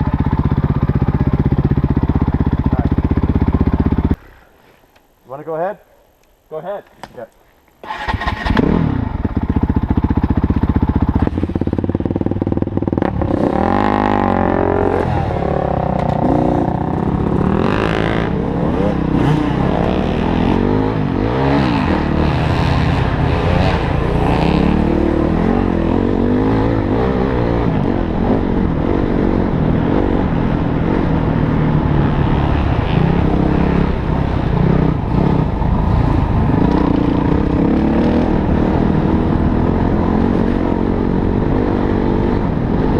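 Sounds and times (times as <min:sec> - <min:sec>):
motorcycle engine revving: 0:00.0 - 0:04.5, 0:07.8 - 0:42.9.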